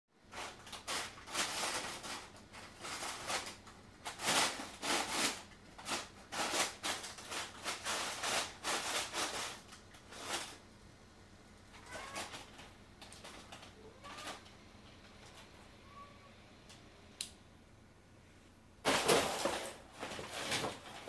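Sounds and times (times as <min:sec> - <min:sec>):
paper rustling and crinkling: 0:00.3 - 0:10.6, 0:18.9 - 0:21.0
cat scrabbling in boxes: 0:11.8 - 0:14.5, 0:18.9 - 0:21.0.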